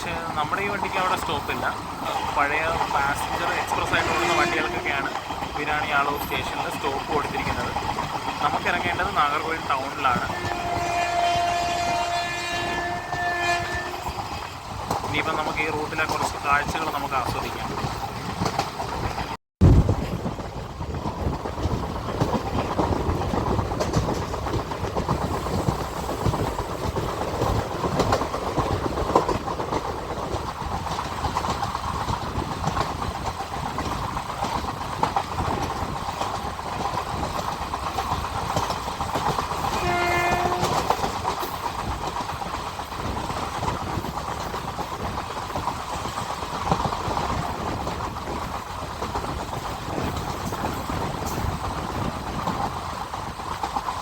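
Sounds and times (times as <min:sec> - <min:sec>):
train rumbling: 0:00.0 - 0:54.0
wheels clicking over rail joints: 0:00.0 - 0:54.0
train horn: 0:03.8 - 0:05.1, 0:10.3 - 0:14.6, 0:39.7 - 0:41.0.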